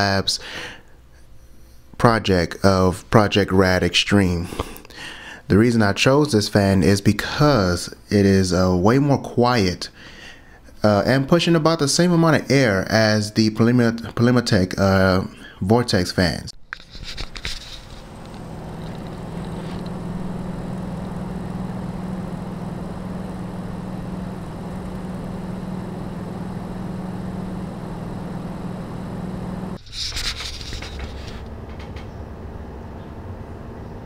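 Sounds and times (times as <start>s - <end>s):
computer fan humming: 16.8s - 34.0s
computer fan whooshing: 17.0s - 34.0s.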